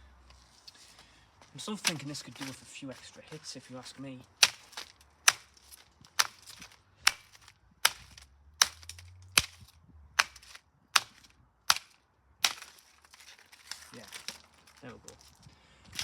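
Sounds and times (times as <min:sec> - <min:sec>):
sharp hits on burnt plastic: 0:01.7 - 0:02.6, 0:04.4 - 0:15.2.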